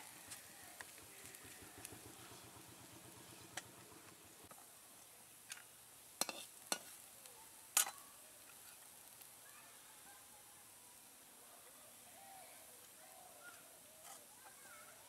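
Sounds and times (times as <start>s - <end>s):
patties sizzling in oil: 0.0s - 11.3s.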